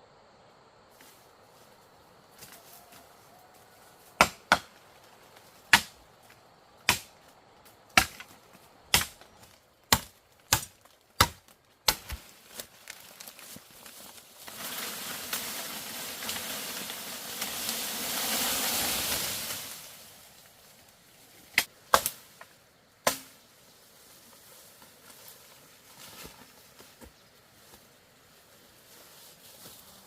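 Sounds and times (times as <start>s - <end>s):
rustling leaves: 0.8s - 30.0s
blade chopping bamboo: 4.2s - 4.7s, 5.7s - 6.0s, 6.8s - 7.2s, 7.9s - 8.3s, 8.9s - 12.4s, 23.0s - 23.4s.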